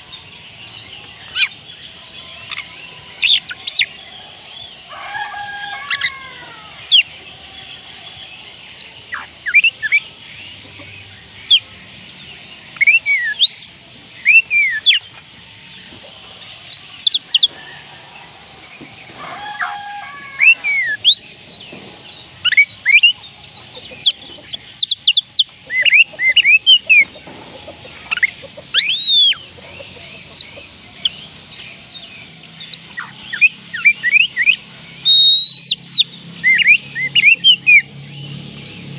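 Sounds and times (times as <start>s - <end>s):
bird singing whistled notes: 6.0s - 10.2s, 11.2s - 17.8s, 20.4s - 38.8s.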